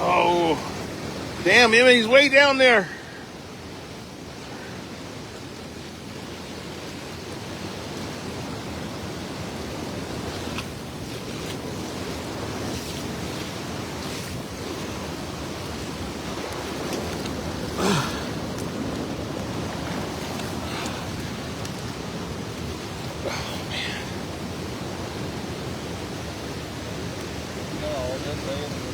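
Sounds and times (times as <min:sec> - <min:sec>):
rushing river water: 0:00.0 - 0:28.9.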